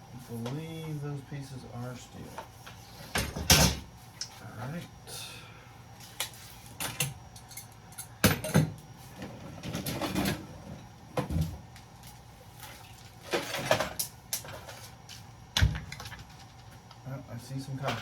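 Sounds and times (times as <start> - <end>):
metal and plastic scrap clattering: 13.2 - 14.9.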